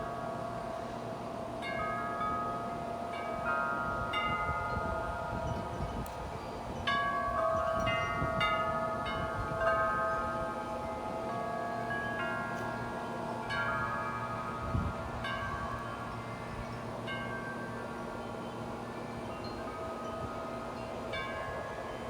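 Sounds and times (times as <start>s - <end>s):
metal wind chimes ringing: 1.6s - 22.0s
gusty wind: 3.8s - 11.2s, 13.6s - 17.0s.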